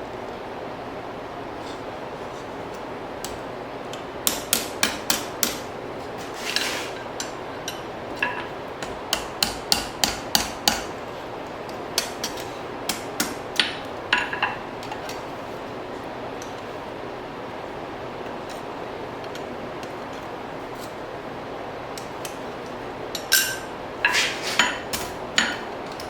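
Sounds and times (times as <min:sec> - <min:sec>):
hammer striking steel on anvil: 0:04.2 - 0:05.7, 0:07.2 - 0:10.9, 0:23.2 - 0:25.7.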